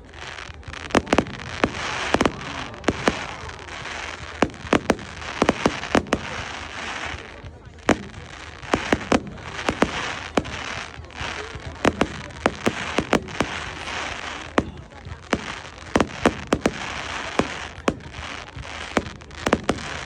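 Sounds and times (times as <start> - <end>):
fireworks bangs: 0.0 - 20.0
fireworks crackle: 0.0 - 20.0.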